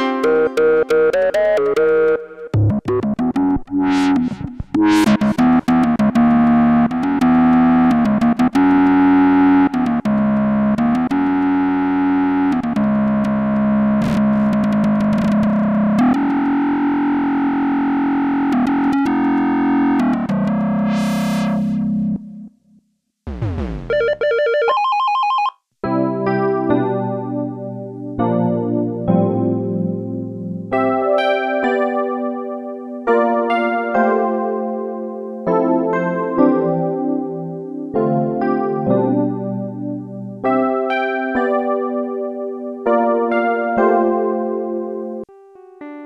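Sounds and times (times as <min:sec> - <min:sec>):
synthesizer chords: 0:00.0 - 0:24.2, 0:45.2 - 0:46.0
synthesizer gliding note: 0:03.8 - 0:05.4, 0:14.0 - 0:22.5.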